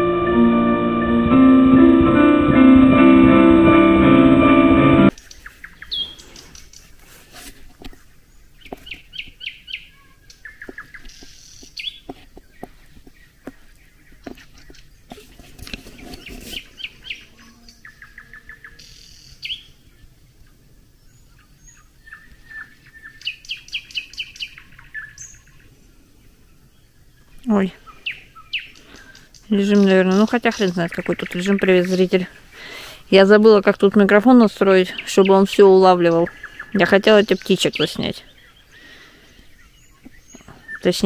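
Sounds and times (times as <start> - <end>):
songbirds singing: 5.1 - 7.0, 8.0 - 41.0.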